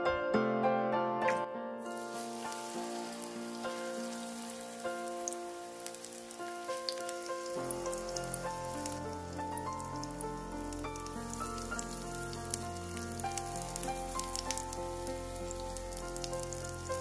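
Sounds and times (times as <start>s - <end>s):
patties sizzling in hot oil: 1.9s - 17.0s.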